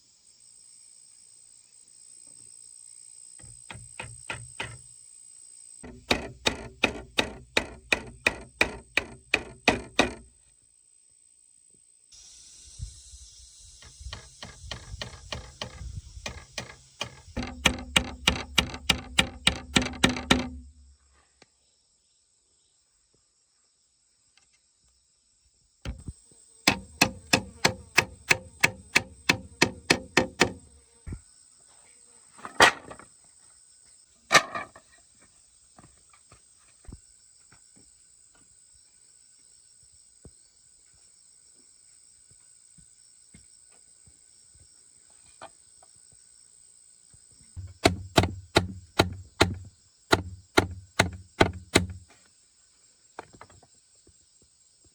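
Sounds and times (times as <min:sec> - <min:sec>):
tool striking wood rapidly: 0:03.5 - 0:04.8, 0:05.8 - 0:10.3, 0:13.8 - 0:20.9, 0:25.9 - 0:26.1, 0:26.7 - 0:30.8, 0:47.6 - 0:52.1
heavy knocks: 0:05.8 - 0:10.3, 0:13.8 - 0:20.9, 0:25.9 - 0:26.1, 0:26.7 - 0:30.8, 0:47.6 - 0:52.0.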